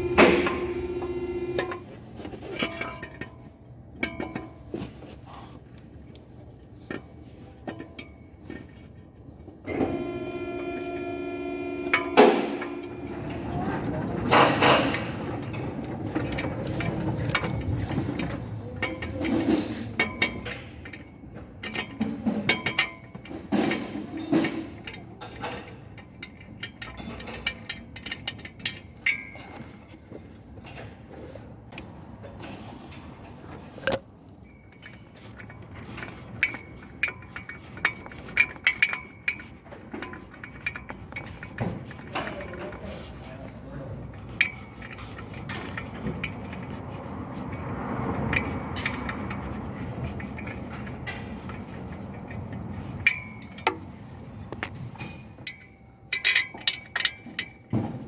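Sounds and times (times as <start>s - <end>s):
metal tools clinking: 9.7s - 30.0s, 32.4s - 58.0s.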